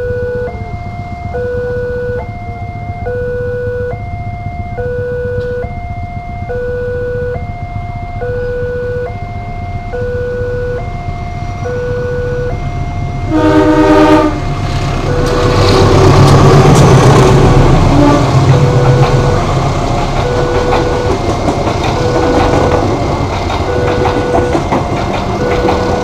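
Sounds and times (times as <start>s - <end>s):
two-tone crossing alarm: 0.0s - 26.0s
train rumbling past: 10.8s - 26.0s
train horn: 13.2s - 16.4s, 17.8s - 18.7s.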